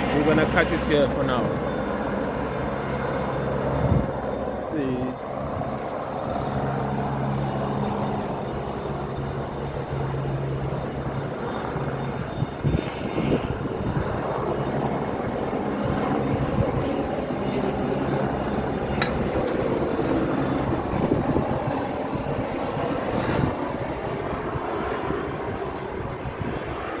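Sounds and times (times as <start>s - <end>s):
helicopter rotors droning: 0.0s - 27.0s.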